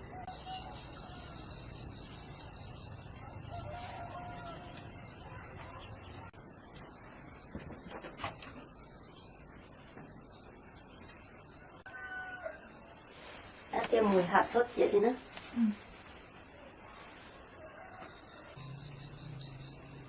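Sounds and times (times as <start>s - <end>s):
rooster crowing: 0.0s - 1.6s, 3.2s - 5.1s, 11.8s - 12.8s, 17.6s - 20.0s.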